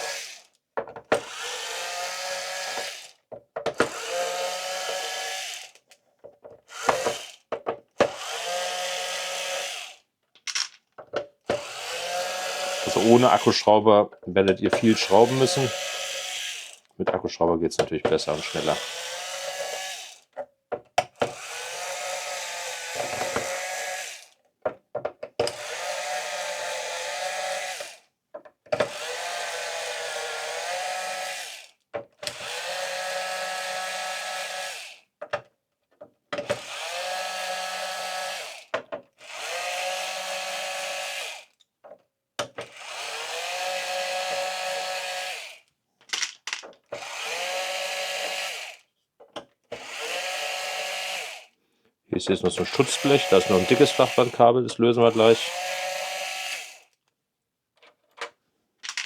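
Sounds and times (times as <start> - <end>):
electric screwdriver motor whine: 0.0 - 0.4, 1.2 - 3.2, 3.8 - 5.8, 6.7 - 7.4, 8.1 - 10.0, 11.6 - 13.6, 14.8 - 16.8, 18.4 - 20.2, 21.2 - 24.3, 25.5 - 28.0, 28.8 - 31.7, 32.3 - 35.0, 36.5 - 41.6, 42.7 - 45.6, 47.0 - 48.8, 49.8 - 51.5, 52.6 - 54.4, 55.1 - 57.0.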